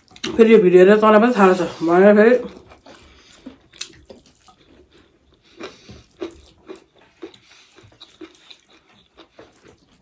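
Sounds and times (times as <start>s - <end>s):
chewing and mouth smacks: 0.0s - 0.4s, 2.4s - 10.0s.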